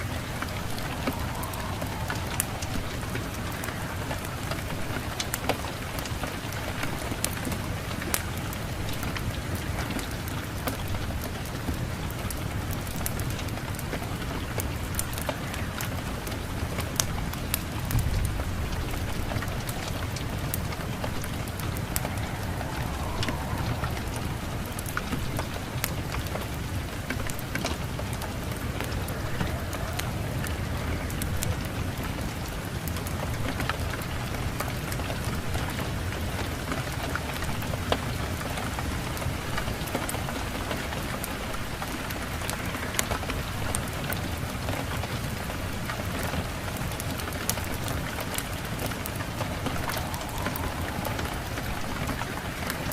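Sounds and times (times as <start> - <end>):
steady rain: 0.0 - 52.9
wood fire crackling: 0.0 - 52.9.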